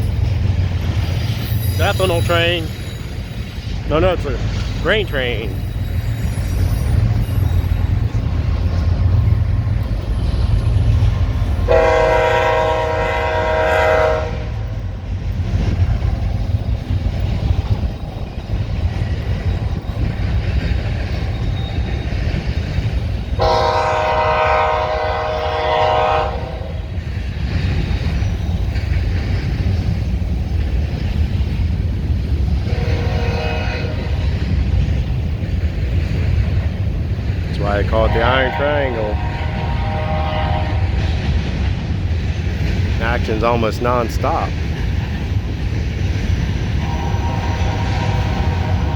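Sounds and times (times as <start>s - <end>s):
freight train rumbling past: 0.0s - 48.9s
locomotive air horn blasts: 11.7s - 14.7s, 23.4s - 26.8s, 32.7s - 34.2s, 37.9s - 41.0s, 46.8s - 48.9s.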